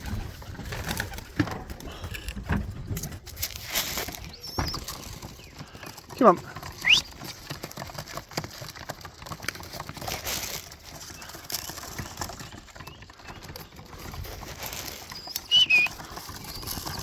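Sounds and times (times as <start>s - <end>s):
short high whistle-like tone: 15.5s - 15.9s.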